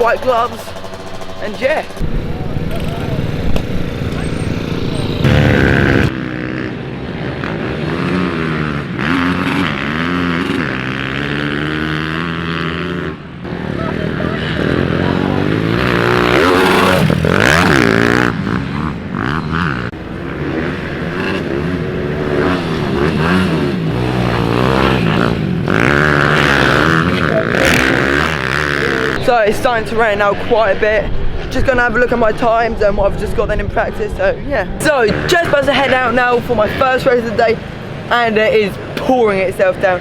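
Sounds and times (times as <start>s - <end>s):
pit bike engines revving: 0.0s - 40.0s.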